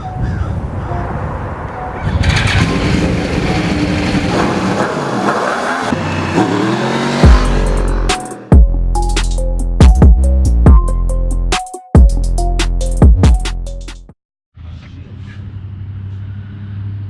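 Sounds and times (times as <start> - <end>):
motorcycle engine revving: 2.0 - 8.6.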